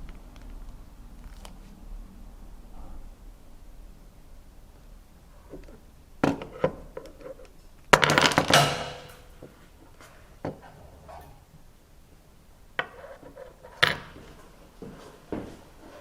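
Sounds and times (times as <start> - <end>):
clicks and knocks: 5.6 - 9.5
pistol parts clattering: 8.0 - 9.3.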